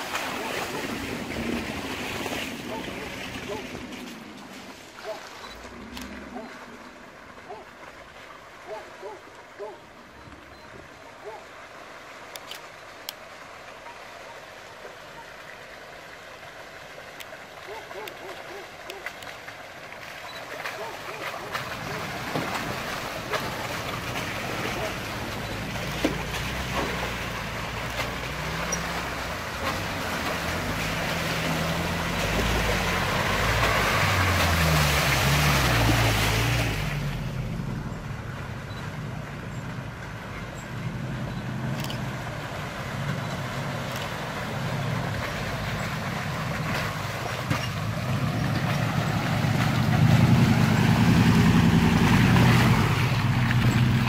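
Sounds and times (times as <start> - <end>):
off-road vehicle engine revving: 21.5 - 54.0.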